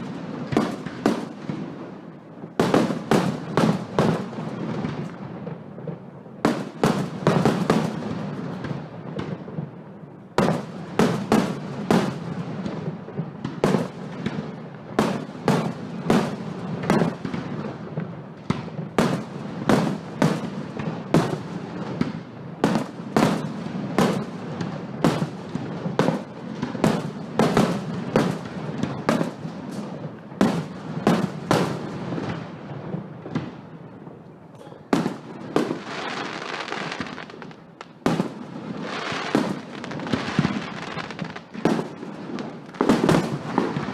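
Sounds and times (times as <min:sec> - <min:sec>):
fireworks bangs: 0:00.0 - 0:43.9.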